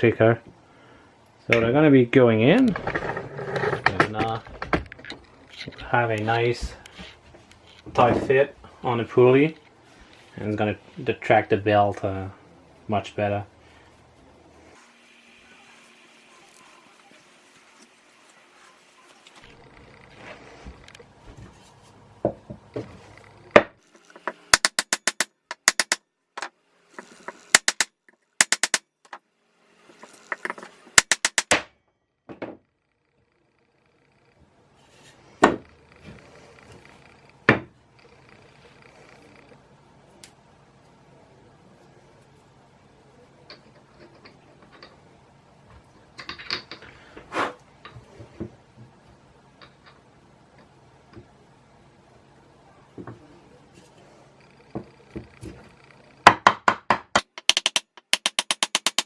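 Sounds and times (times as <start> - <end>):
rapid tool clicks: 24.5 - 26.0, 27.3 - 28.8, 30.3 - 31.6, 57.1 - 59.0.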